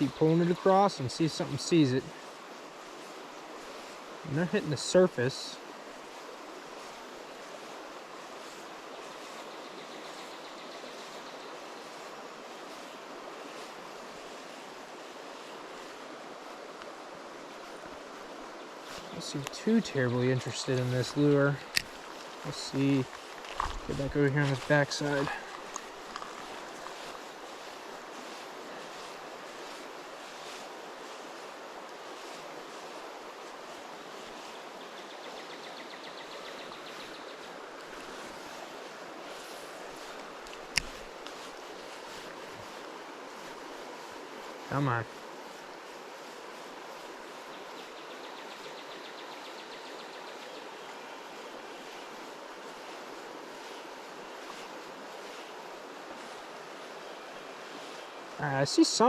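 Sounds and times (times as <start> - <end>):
river water rushing over rocks: 0.0 - 35.3, 35.9 - 59.0.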